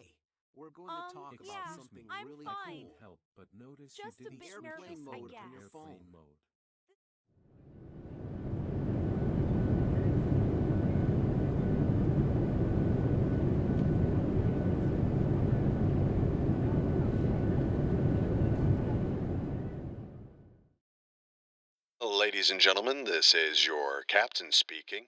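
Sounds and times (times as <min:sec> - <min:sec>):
jet engines rumbling in cabin: 0:07.8 - 0:20.4.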